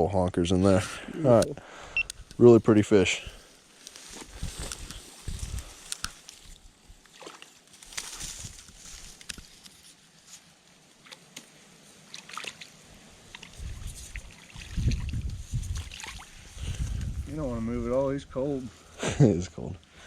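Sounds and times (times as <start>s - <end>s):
river water splashing and trickling: 5.8s - 8.9s, 10.7s - 16.6s.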